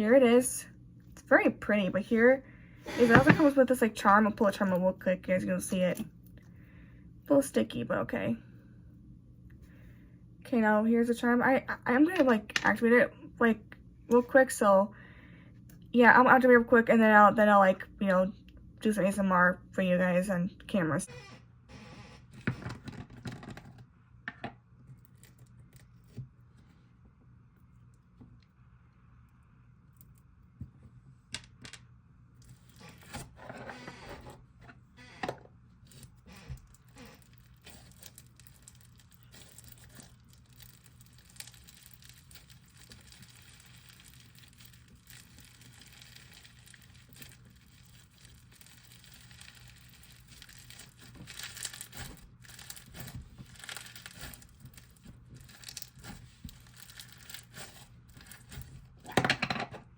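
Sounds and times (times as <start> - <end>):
beaded slime crackling: 36.6 - 59.0.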